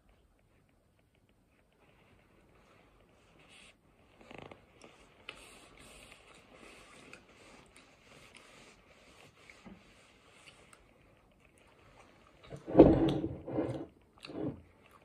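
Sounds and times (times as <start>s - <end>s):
chewing and wet mouth sounds: 4.7s - 12.6s, 13.8s - 15.0s.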